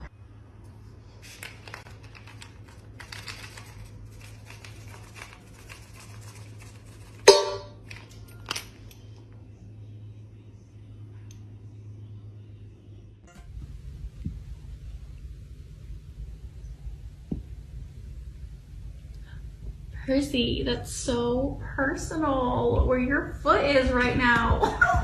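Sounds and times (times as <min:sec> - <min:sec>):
steady low hum: 0:00.0 - 0:25.0
small clicks and rustles: 0:01.2 - 0:07.2.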